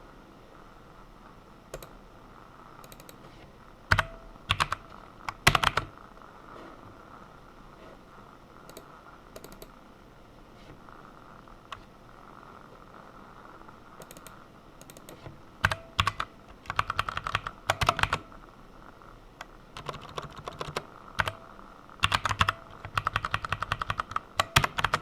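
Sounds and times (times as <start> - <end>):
computer keyboard keystrokes: 1.7 - 2.0, 2.8 - 3.2, 3.9 - 5.9, 8.7 - 9.8, 14.0 - 18.3, 19.4 - 21.4, 22.0 - 25.0.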